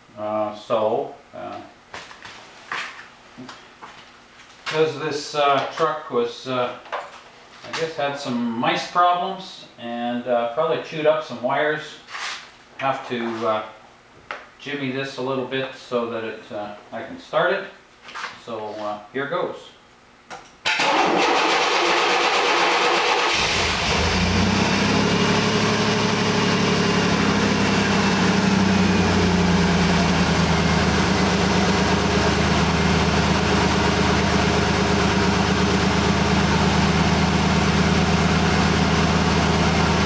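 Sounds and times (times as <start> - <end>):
car engine idling: 20.9 - 40.0.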